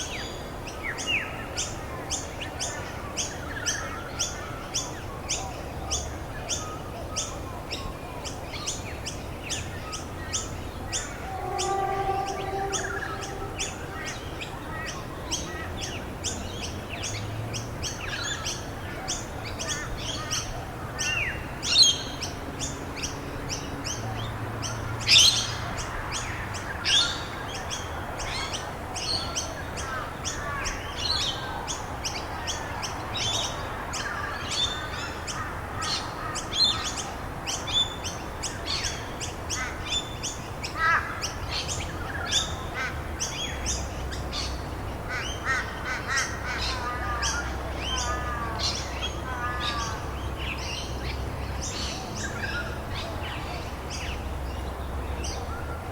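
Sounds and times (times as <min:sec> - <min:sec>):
songbirds chirping and tweeting: 0:00.0 - 0:55.9
bird warbling: 0:10.9 - 0:14.8.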